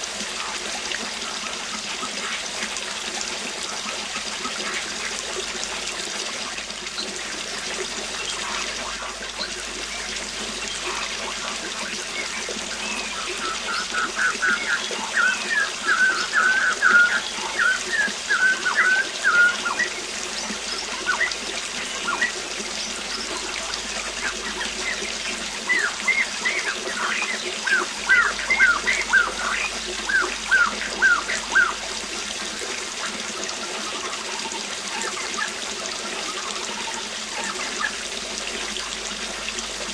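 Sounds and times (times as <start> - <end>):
waterfall rushing: 0.0 - 39.9
songbirds singing: 6.4 - 32.1.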